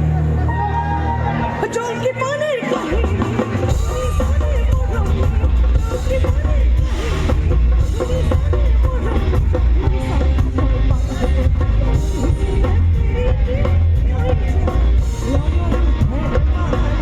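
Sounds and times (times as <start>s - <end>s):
loud live band music: 0.0s - 17.0s.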